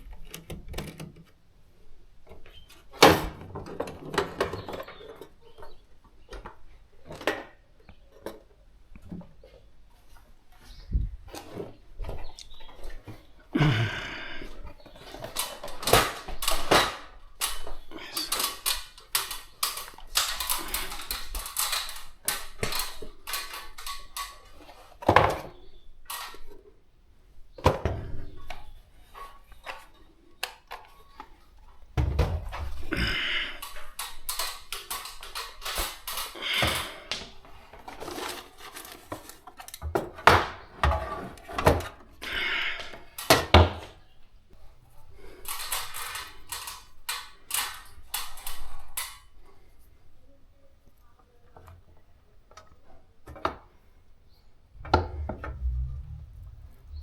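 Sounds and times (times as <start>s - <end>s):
hard objects clattering: 11.3s - 26.7s, 27.5s - 44.0s, 44.6s - 49.6s, 54.7s - 57.0s.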